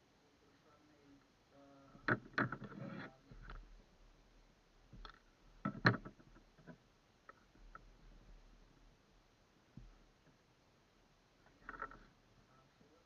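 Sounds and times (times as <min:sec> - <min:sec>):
fishing gear knocks and clicks: 0:05.0 - 0:07.8, 0:11.5 - 0:12.1.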